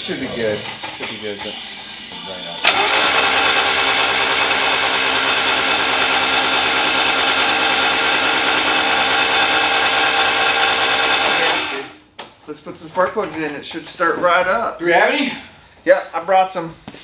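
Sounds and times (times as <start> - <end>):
starter motor cranking engine: 2.6 - 12.0.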